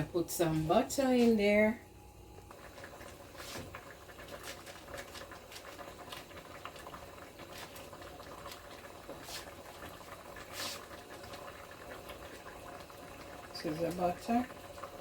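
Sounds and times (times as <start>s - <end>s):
stew bubbling in a pot: 0.0s - 15.0s.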